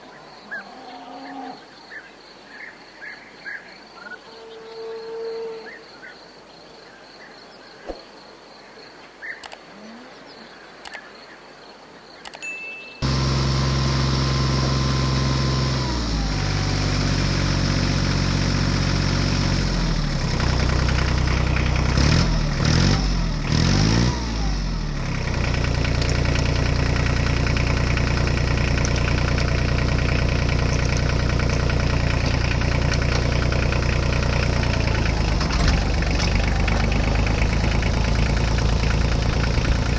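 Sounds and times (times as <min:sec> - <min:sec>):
faint insect chirping: 0:00.0 - 0:13.0
clicks: 0:09.4 - 0:09.6, 0:10.8 - 0:11.1, 0:12.2 - 0:12.6
diesel tractor engine revving: 0:13.0 - 0:39.9.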